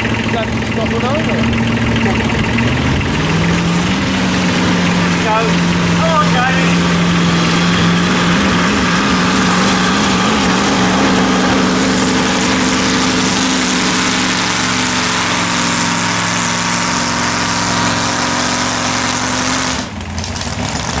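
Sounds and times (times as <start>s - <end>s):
pulling tractor engine running: 0.0s - 21.0s.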